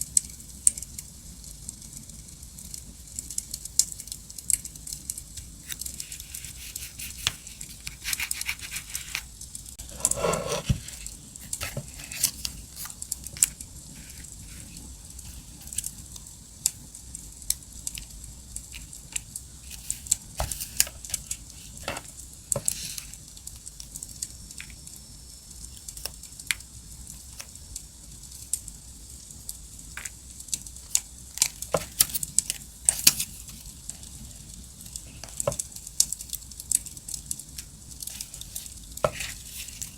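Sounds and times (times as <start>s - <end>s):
paper rustling: 5.6s - 16.0s, 19.7s - 23.2s, 31.6s - 34.2s, 38.0s - 39.9s.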